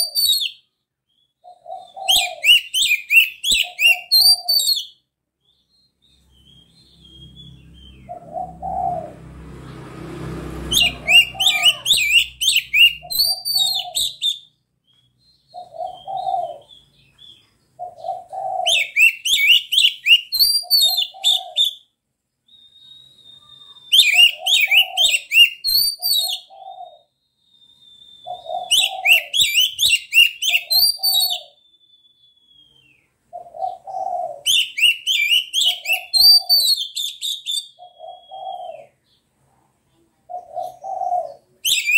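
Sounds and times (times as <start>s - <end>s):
songbird singing: 0.0s - 41.9s
dove cooing: 1.4s - 4.8s, 7.8s - 9.2s, 10.6s - 14.4s, 15.5s - 17.0s, 17.8s - 21.9s, 23.9s - 27.1s, 28.2s - 31.6s, 33.3s - 36.9s, 37.8s - 39.2s, 40.0s - 41.9s
long thin bird whistles: 10.7s - 17.5s, 22.5s - 26.6s, 27.2s - 33.1s.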